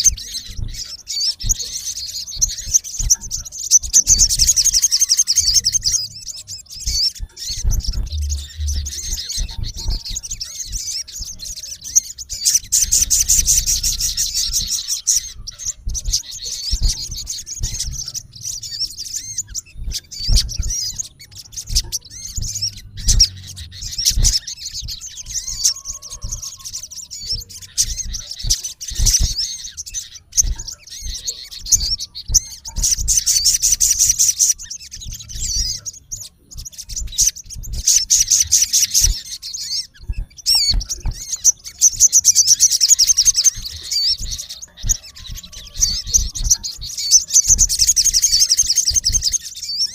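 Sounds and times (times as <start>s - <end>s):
sunbird high-pitched chirping: 0.0s - 49.9s
low thumps: 5.4s - 11.6s, 12.6s - 26.4s.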